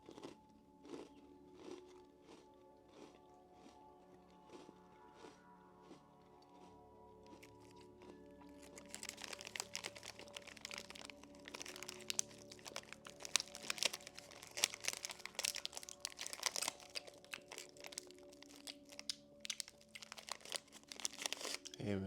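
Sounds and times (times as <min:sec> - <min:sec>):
crunching crisp snack: 0:00.0 - 0:21.9
soft background music: 0:00.0 - 0:22.0
plastic wrapper crinkling: 0:08.4 - 0:21.8.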